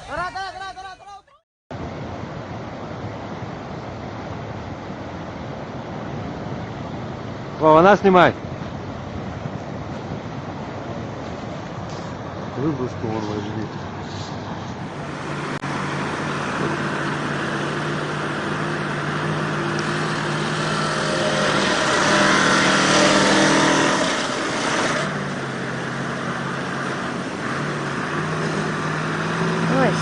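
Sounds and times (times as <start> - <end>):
truck engine revving: 10.2 - 30.0.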